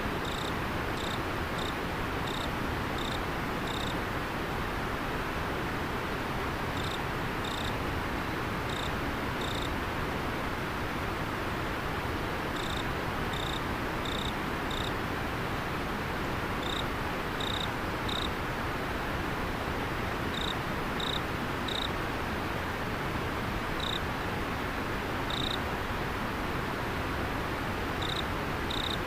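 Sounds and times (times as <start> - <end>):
insect chirping: 0.2 - 4.0, 6.8 - 7.7, 8.7 - 9.7, 12.6 - 14.9, 16.6 - 16.8, 17.4 - 18.3, 20.3 - 21.9, 23.8 - 24.0, 25.3 - 25.6, 28.0 - 29.0.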